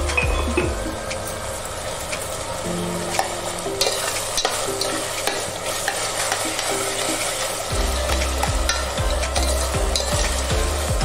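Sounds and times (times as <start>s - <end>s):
low hum: 0.0s - 4.8s, 7.7s - 11.0s
vegetables sizzling in hot oil: 0.0s - 11.0s.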